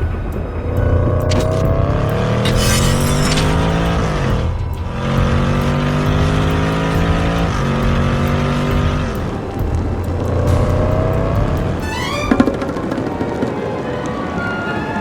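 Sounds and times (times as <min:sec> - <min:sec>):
background music: 0:03.8 - 0:15.0.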